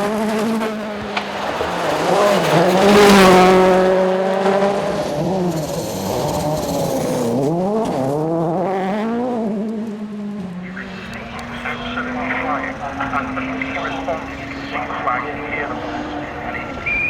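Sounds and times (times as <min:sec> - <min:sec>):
tyres on gravel: 0:00.0 - 0:08.4
rally car engine revving hard: 0:00.0 - 0:16.9.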